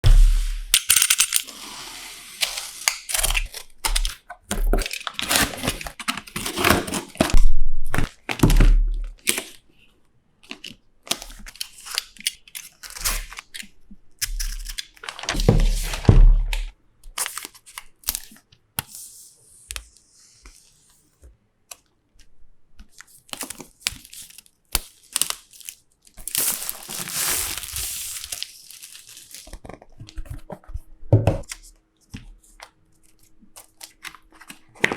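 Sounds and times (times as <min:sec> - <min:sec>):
packaging tearing and crinkling: 0:00.0 - 0:09.6, 0:10.5 - 0:18.4, 0:23.0 - 0:29.9.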